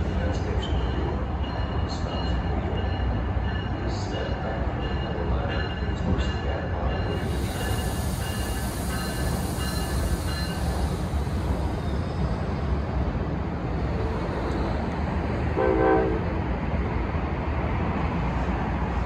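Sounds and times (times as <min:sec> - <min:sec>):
electric train rumbling: 0:00.0 - 0:19.0
train horn blast: 0:15.5 - 0:16.3.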